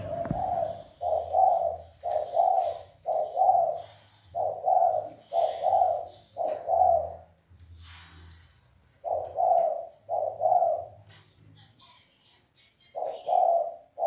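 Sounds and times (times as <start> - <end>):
dove cooing: 0.0 - 7.4, 8.9 - 11.2, 12.9 - 14.0.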